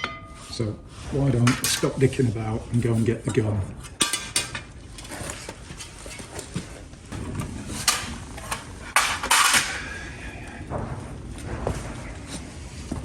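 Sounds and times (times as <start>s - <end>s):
footsteps on workshop floor: 10.5s - 13.0s.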